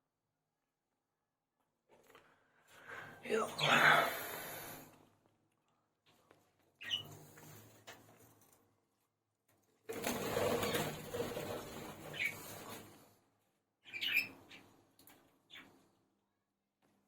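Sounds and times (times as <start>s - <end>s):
bird chirp: 6.8s - 7.2s, 13.8s - 14.8s.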